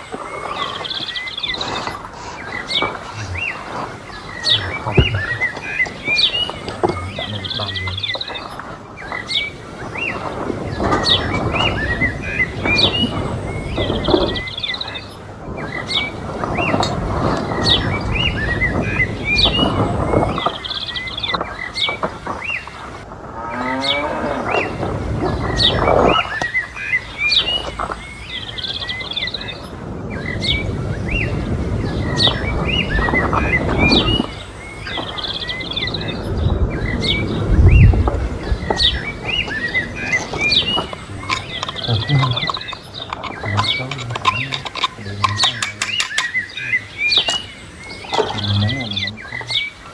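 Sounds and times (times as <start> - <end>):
rough low noise: 0.0 - 14.0
small birds chirping: 0.0 - 49.9.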